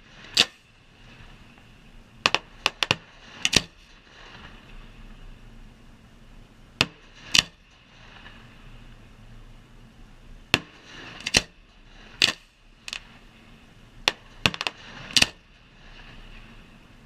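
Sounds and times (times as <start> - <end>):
fireworks banging: 2.2 - 4.5, 6.8 - 8.4, 14.1 - 16.0.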